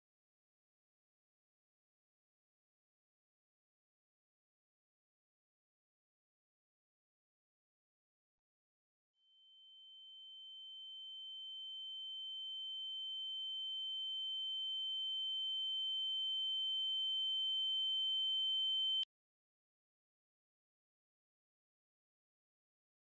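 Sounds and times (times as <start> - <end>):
high-pitched electronic sine tone: 10.8 - 19.0.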